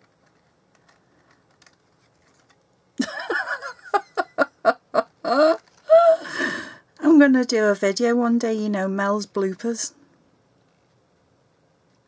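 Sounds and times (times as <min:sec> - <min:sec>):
woman laughing: 0:03.0 - 0:06.7.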